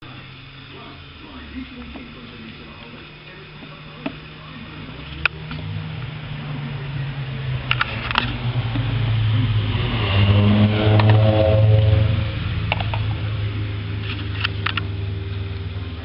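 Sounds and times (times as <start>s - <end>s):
engine humming: 0.0s - 16.0s
sharp clicks: 14.0s - 14.9s.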